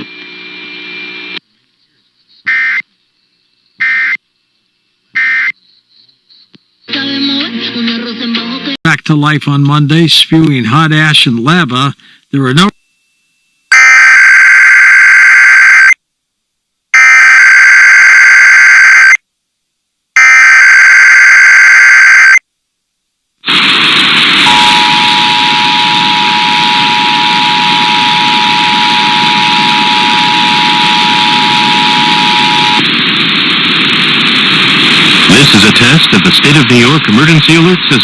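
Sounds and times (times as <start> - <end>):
loud hiss: 23.5 - 26.1
two-tone attention signal: 24.5 - 32.8.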